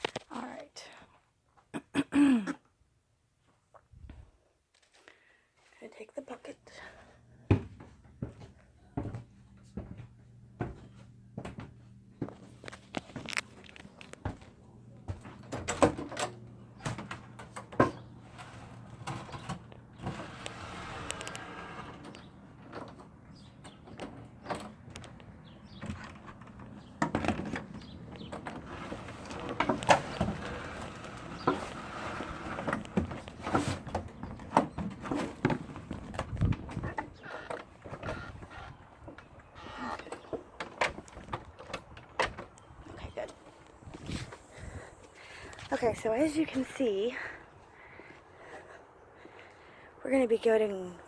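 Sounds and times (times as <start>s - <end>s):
knocks and clicks of handling things: 22.0s - 31.7s.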